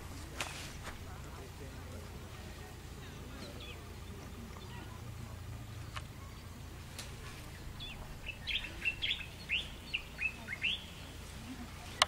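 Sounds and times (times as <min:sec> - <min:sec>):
bird chirping: 0:03.4 - 0:05.0, 0:05.6 - 0:11.3.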